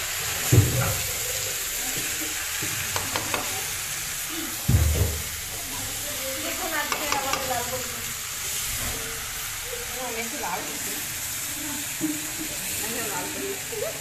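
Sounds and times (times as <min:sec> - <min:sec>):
vegetables sizzling in a pan: 0:00.0 - 0:14.0
spatula clicking against pan: 0:02.9 - 0:03.7, 0:06.8 - 0:07.7.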